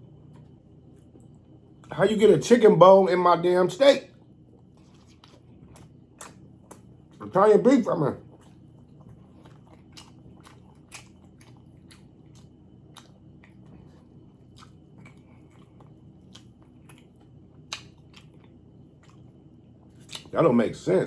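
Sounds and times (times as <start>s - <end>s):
person chewing with wet mouth clicks: 4.2s - 7.2s, 8.3s - 20.3s.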